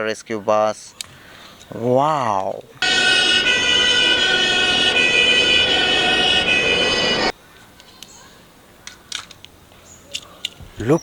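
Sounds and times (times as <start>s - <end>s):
fire vehicle siren wailing: 2.8s - 7.3s.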